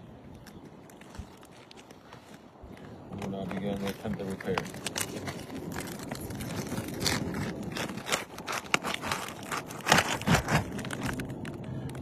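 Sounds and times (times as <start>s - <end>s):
roof shingles crackling and tearing: 0.4s - 12.0s
sharp cracks: 3.2s - 12.0s.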